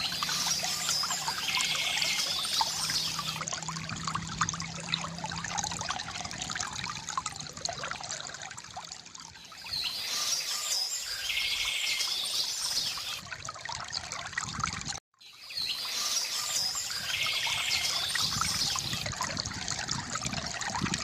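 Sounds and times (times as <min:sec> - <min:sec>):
birds singing: 0:00.0 - 0:03.4, 0:09.4 - 0:13.2, 0:15.2 - 0:19.2
stream trickling over stones: 0:00.0 - 0:21.0.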